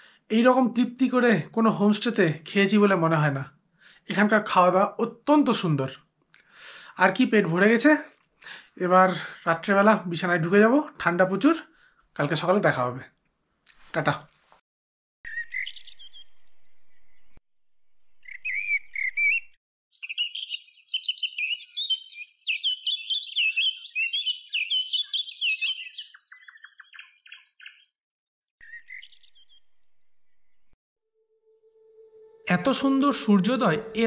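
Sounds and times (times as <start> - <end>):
small birds chirping: 15.3 - 17.4, 18.0 - 28.0, 28.6 - 30.8.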